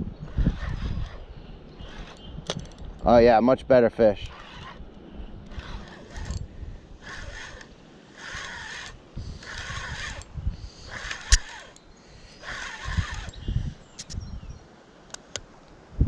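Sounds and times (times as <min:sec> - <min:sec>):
wind buffeting microphone: 0:00.0 - 0:14.6
fishing line zipping: 0:00.2 - 0:02.8, 0:04.2 - 0:14.2.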